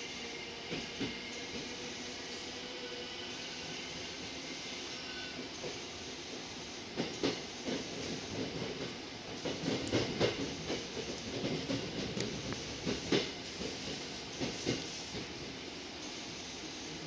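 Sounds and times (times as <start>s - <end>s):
subway car rumble and hiss: 0.0s - 17.0s
wheels clacking over rail joints: 7.0s - 15.3s.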